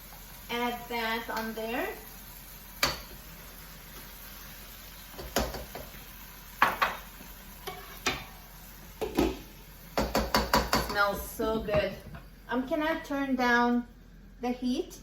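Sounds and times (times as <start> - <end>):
faint simmering sizzle: 0.0 - 15.0
spoon knocking on pot: 2.8 - 3.1, 5.2 - 5.9, 6.6 - 7.0, 10.0 - 12.0.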